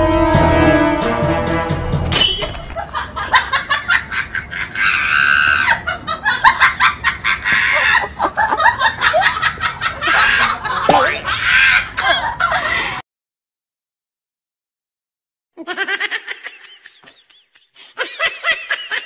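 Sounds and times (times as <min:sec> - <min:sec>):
music: 0:00.0 - 0:02.8
sharp hit: 0:00.0 - 0:02.8
comedic cackling sound effect: 0:15.6 - 0:19.0.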